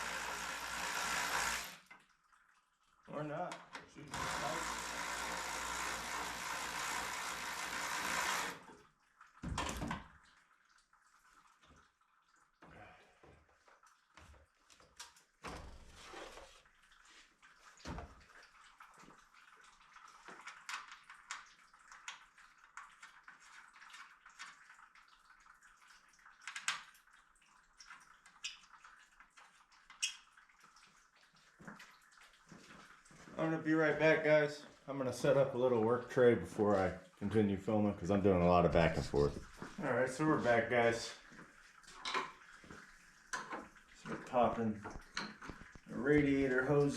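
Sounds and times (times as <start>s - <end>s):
small motor running: 0.0s - 1.8s, 4.1s - 8.7s.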